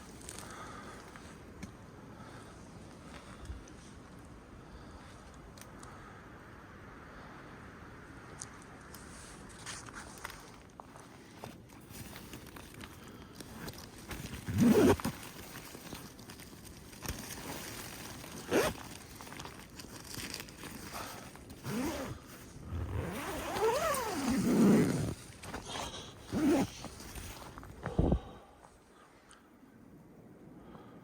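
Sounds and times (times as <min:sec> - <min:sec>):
tent zipper being pulled: 0:13.5 - 0:16.0, 0:17.1 - 0:27.6.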